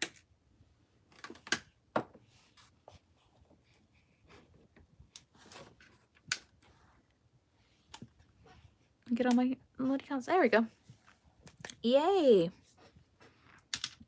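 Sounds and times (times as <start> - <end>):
soft rustling handling noises: 10.6 - 13.7.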